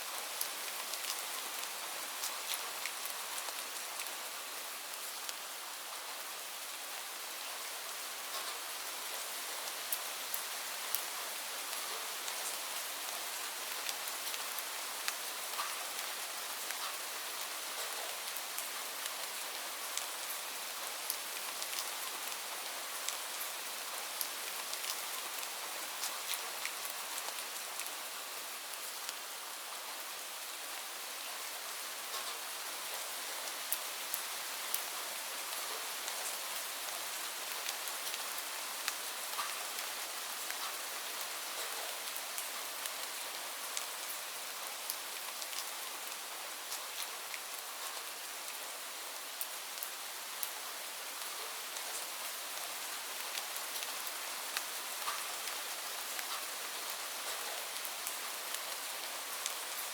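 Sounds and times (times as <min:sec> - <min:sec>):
steady rain: 0:00.0 - 0:59.9
raindrops pattering on a surface: 0:00.2 - 0:05.5, 0:08.0 - 0:30.7, 0:31.9 - 0:48.6, 0:49.2 - 0:59.9.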